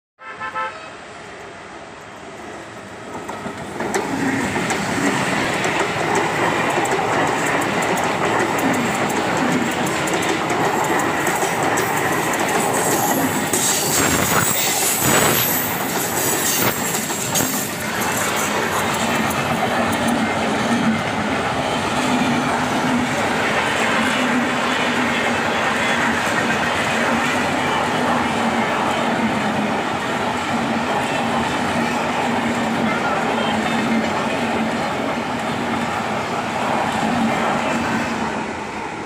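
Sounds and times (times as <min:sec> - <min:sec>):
train passing rumble: 0:00.8 - 0:39.0
wheels clacking over rail joints: 0:03.1 - 0:30.7.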